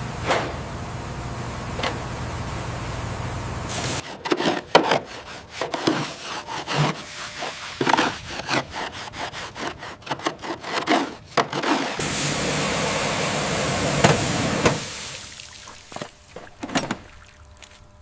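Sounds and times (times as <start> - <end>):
steady hum: 0.0 - 10.1, 11.0 - 18.0
hand tool scraping a surface: 3.7 - 12.1.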